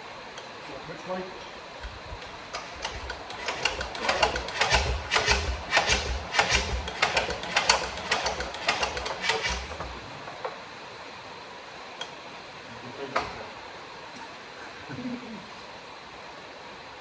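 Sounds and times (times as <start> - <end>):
engine cranked by hand clanking: 2.5 - 10.5.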